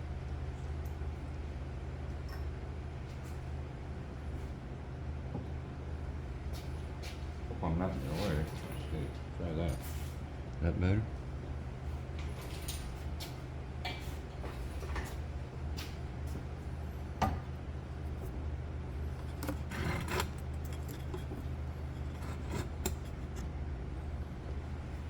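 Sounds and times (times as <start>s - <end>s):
steady low hum: 0.0s - 25.0s
rattling scrape: 19.2s - 23.4s.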